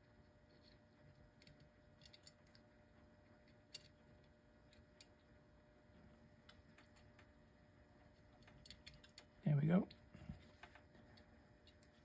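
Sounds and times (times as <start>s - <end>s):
small metal gear clicks: 1.4s - 2.6s.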